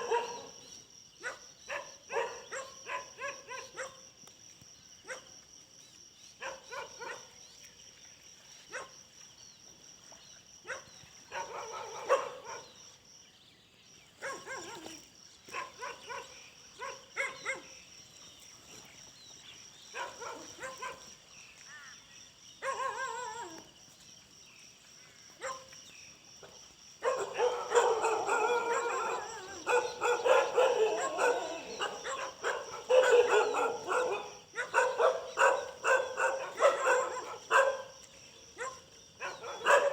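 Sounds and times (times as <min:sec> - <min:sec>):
dogs barking: 0:00.0 - 0:04.1, 0:05.0 - 0:05.3, 0:06.4 - 0:07.3, 0:08.7 - 0:08.9, 0:10.6 - 0:12.8, 0:14.2 - 0:17.8, 0:19.9 - 0:21.1, 0:22.6 - 0:23.6, 0:25.4 - 0:25.7, 0:26.4 - 0:39.9.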